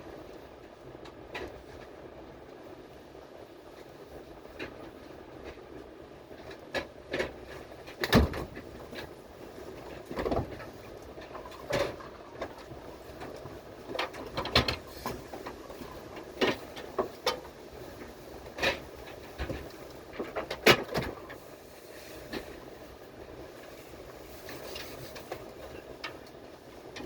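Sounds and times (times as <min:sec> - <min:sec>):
train carriage rumble: 0:00.0 - 0:27.0
knocks and clunks: 0:06.8 - 0:09.1.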